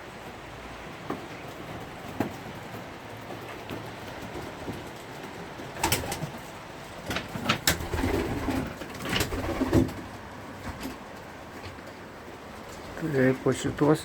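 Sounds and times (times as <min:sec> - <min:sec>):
sharp knocks and clatters: 0:01.0 - 0:06.4
pigeons cooing: 0:07.5 - 0:10.2.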